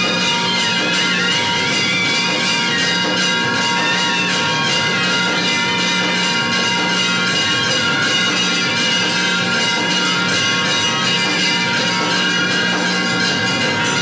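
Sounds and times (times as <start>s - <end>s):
bells ringing rapidly: 0.0s - 14.0s.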